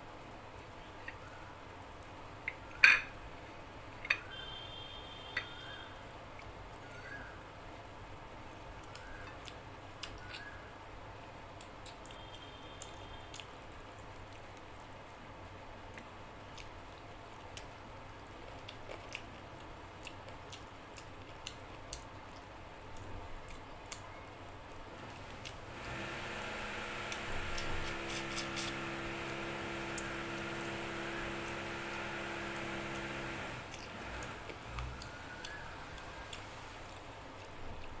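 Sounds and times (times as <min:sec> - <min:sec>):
wet chewing and lip smacks: 0:18.5 - 0:24.1.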